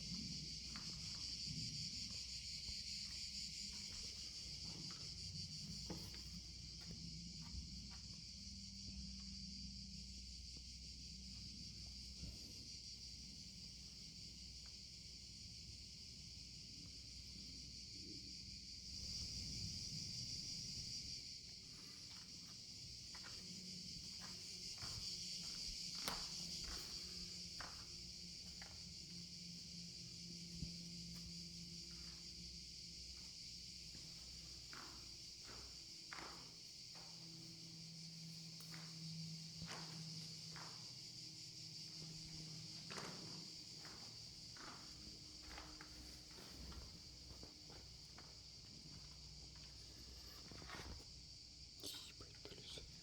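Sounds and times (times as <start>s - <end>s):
insects buzzing: 0.0s - 53.0s
footsteps on forest path: 21.8s - 29.0s.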